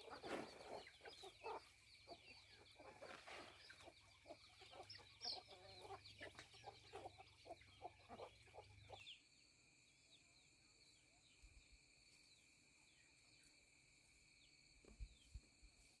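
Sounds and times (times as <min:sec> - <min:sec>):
chickens clucking: 0:00.0 - 0:09.2.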